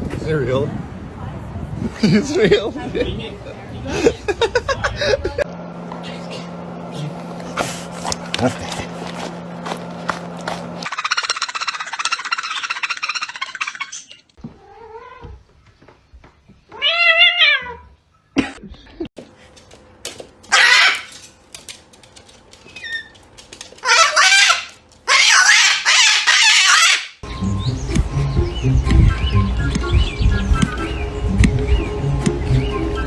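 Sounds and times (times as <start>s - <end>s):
drawn-out animal cries: 20.5s - 21.2s, 23.8s - 27.2s.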